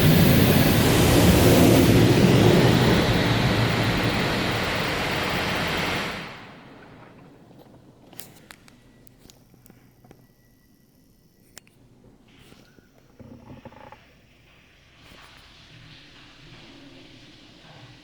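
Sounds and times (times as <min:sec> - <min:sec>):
car wash spray rushing: 0:00.0 - 0:07.9, 0:14.5 - 0:18.0
faint clicks: 0:06.8 - 0:10.6, 0:11.4 - 0:11.8.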